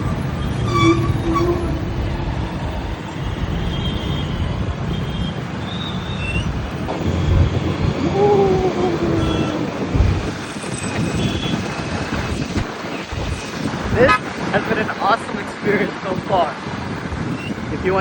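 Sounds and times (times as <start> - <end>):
short gliding tone: 0.0 - 2.1
road rumble: 0.0 - 18.0.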